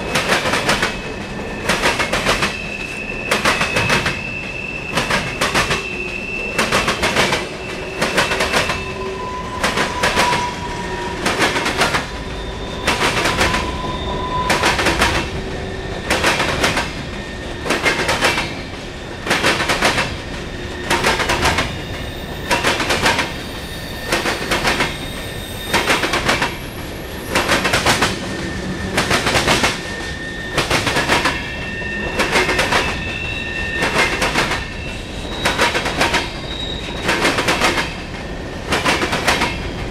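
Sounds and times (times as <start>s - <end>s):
faint wheel squeals: 29.7s - 37.1s.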